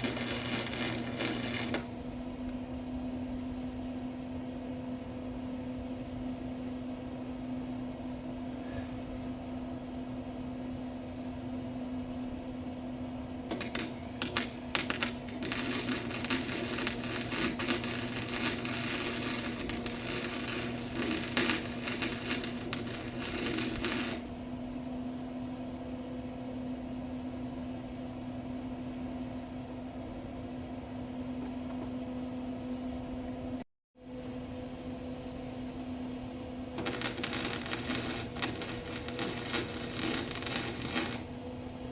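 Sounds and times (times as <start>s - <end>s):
welding arc crackling: 0.0s - 2.0s, 13.5s - 24.3s, 36.8s - 41.4s
steady hum: 0.0s - 41.9s.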